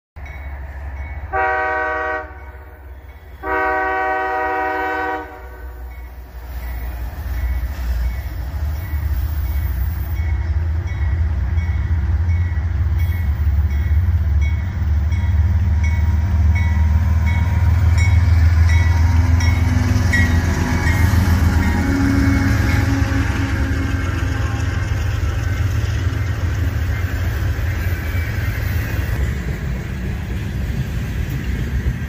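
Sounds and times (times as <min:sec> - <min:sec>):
locomotive bell ringing: 0:00.2 - 0:01.7, 0:05.7 - 0:29.0
diesel locomotive engine rumble: 0:00.2 - 0:32.0
freight cars wheel and rail noise: 0:00.2 - 0:32.0.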